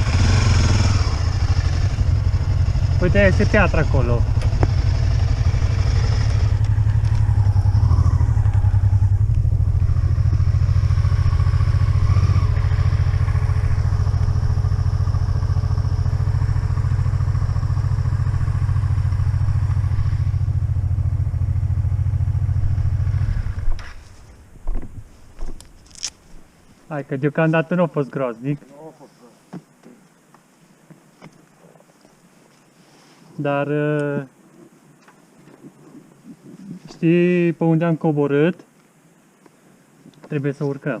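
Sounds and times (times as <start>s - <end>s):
motorcycle engine idling low: 0.0s - 25.5s.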